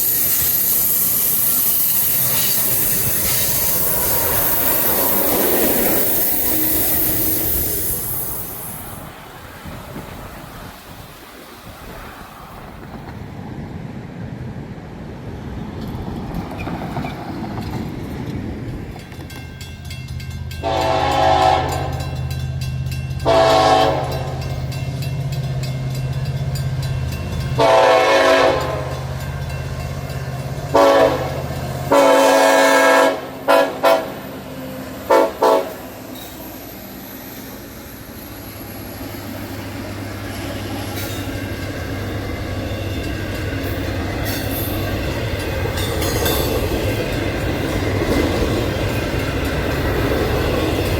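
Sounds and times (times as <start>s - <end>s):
train running: 0.0s - 50.9s
train horn blasts: 20.6s - 22.4s, 23.2s - 24.7s, 27.5s - 29.2s, 30.7s - 34.4s, 35.0s - 35.9s.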